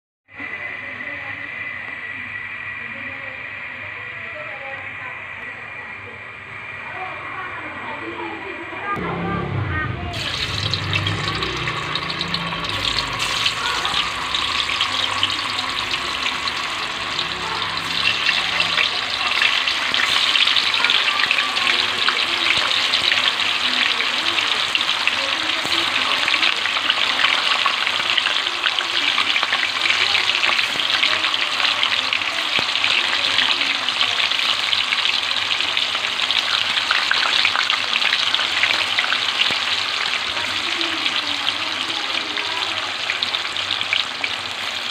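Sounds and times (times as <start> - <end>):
tofu deep-frying in oil: 10.2 - 44.9.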